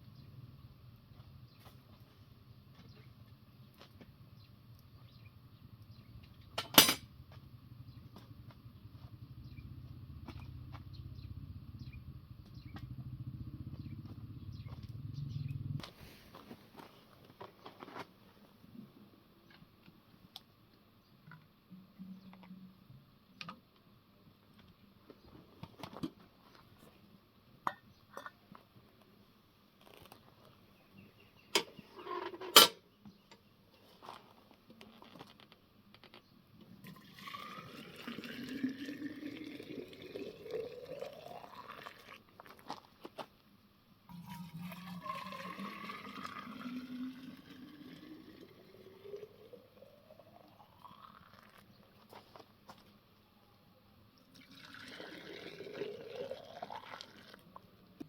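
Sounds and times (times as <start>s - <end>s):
pots and utensils clinking: 6.6s - 7.1s
sharp metal clanks: 6.6s - 7.1s
low rumble: 8.7s - 15.8s.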